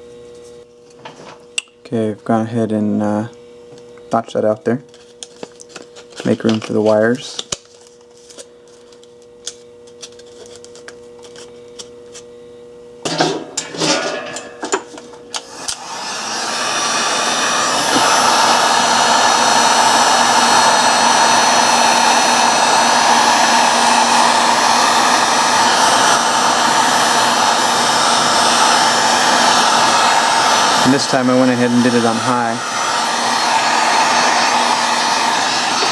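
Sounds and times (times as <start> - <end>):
heat gun blowing: 13.1 - 35.9.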